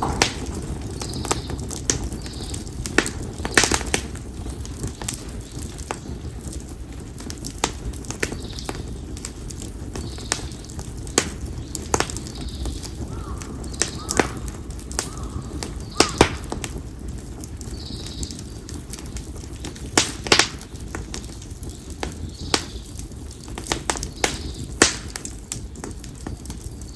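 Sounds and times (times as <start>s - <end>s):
campfire crackling and popping: 0.0s - 26.9s
low fire rumble: 0.0s - 26.9s.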